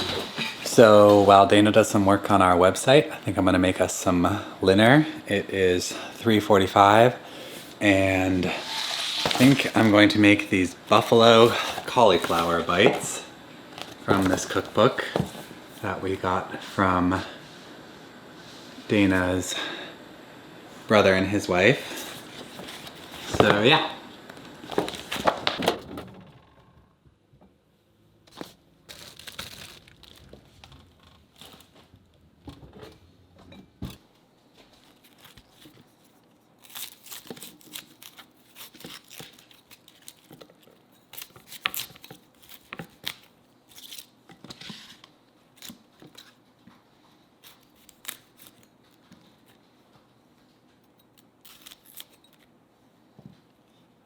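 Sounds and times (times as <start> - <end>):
crinkling and tearing: 8.5 - 10.2, 28.3 - 32.1, 34.6 - 44.2, 45.5 - 46.4, 47.4 - 49.6, 51.2 - 52.5.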